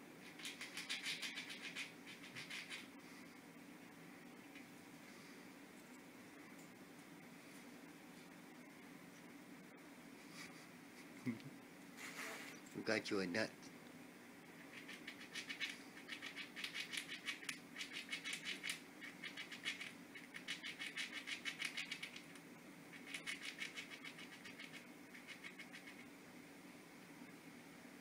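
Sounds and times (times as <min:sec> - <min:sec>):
squirrel gnawing nut shell: 0:00.2 - 0:02.9, 0:14.6 - 0:26.1.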